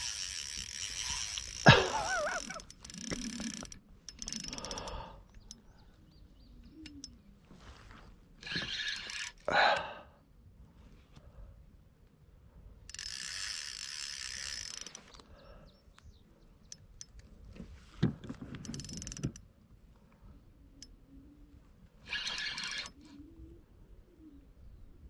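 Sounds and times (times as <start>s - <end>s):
fishing reel drag buzzing: 0.0s - 5.1s, 8.4s - 9.5s, 12.9s - 15.2s, 18.6s - 19.4s, 22.0s - 23.1s.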